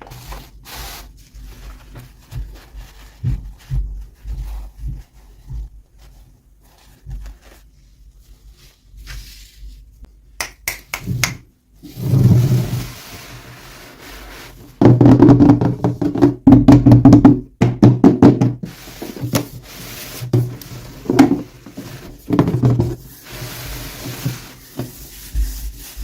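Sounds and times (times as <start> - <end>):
rubbing thump: 1.8 - 5.8, 18.3 - 26.0.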